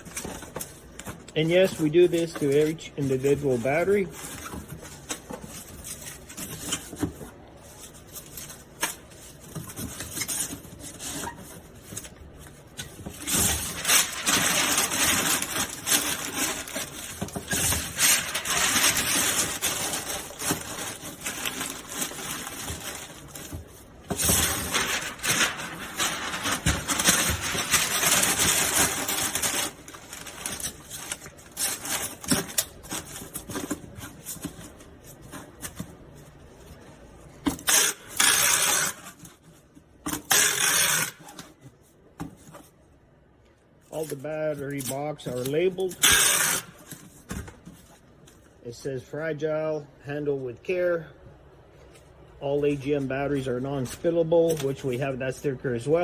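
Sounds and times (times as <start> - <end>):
cardboard scraping: 0.0 - 36.4
cardboard rustling: 0.0 - 42.8.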